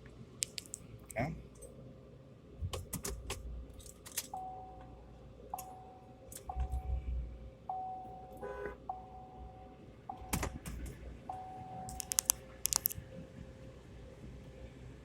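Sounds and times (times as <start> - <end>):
sharp clicks: 0.4 - 0.8, 11.9 - 13.0.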